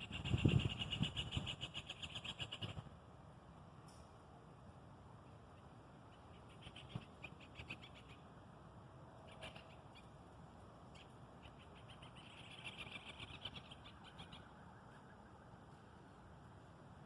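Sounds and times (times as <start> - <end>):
birds chirping and trilling: 0.0 - 2.9, 5.5 - 8.4, 9.2 - 10.2, 10.8 - 15.8
low background hum: 0.0 - 17.0.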